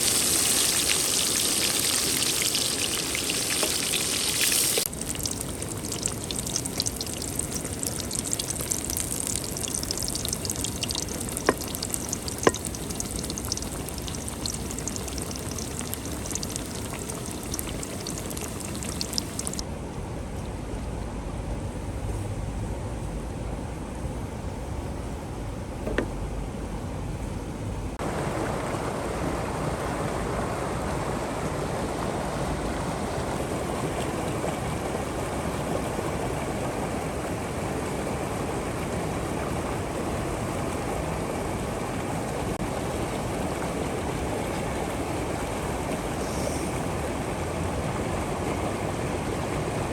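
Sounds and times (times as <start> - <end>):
river water rushing: 28.0 - 49.9.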